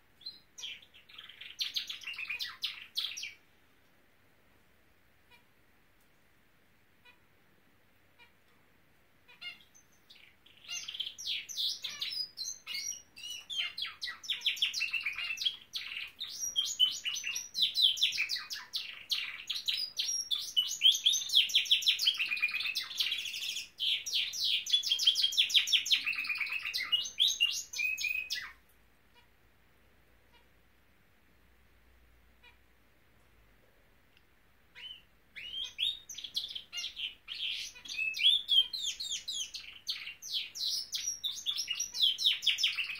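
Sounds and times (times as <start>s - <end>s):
canary chirping and trilling: 0.2s - 3.5s, 5.2s - 5.6s, 7.0s - 7.4s, 8.1s - 8.5s, 9.2s - 29.5s, 30.2s - 30.7s, 32.1s - 32.9s, 34.6s - 42.9s.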